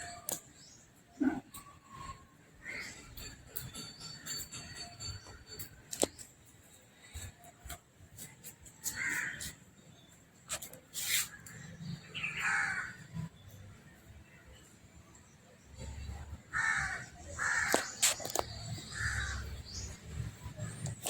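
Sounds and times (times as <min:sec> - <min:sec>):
crow cawing: 0:12.3 - 0:13.1, 0:16.5 - 0:17.9, 0:18.9 - 0:19.4.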